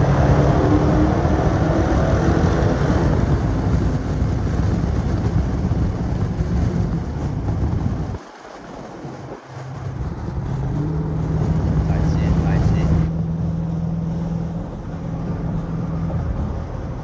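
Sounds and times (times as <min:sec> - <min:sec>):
car exhaust droning: 0:00.0 - 0:08.2.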